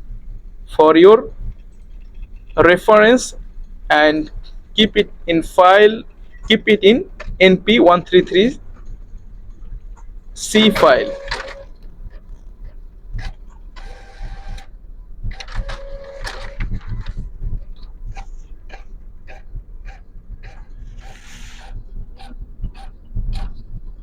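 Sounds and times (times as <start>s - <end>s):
printer whirring: 2.6s - 23.6s
printer clicking: 10.4s - 23.5s.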